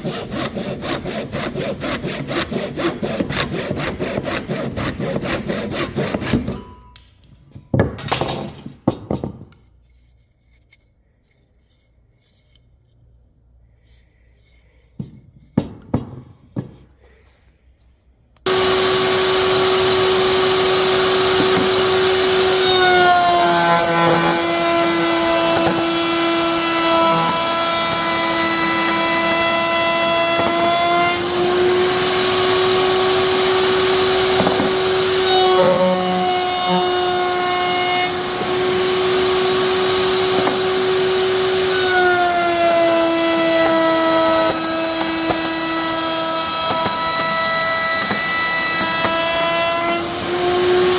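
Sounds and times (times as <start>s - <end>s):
power tool cutting wood: 0.0s - 6.6s, 18.5s - 50.9s
power tool whining: 18.5s - 50.9s.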